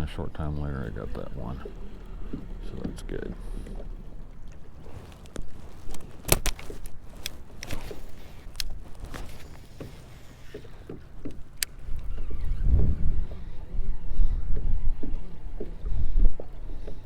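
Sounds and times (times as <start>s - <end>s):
wind buffeting microphone: 0.0s - 17.0s
fishing gear clicks and knocks: 0.8s - 12.6s.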